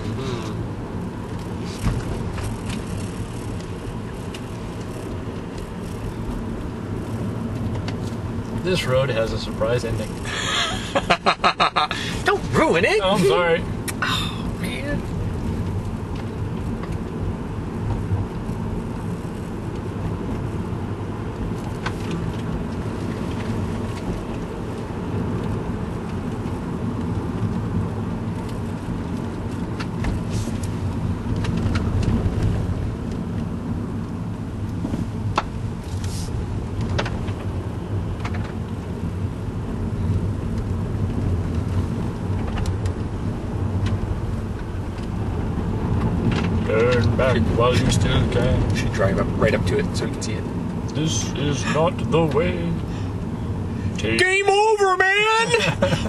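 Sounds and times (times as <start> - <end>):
engine and road rumble: 0.0 - 56.0.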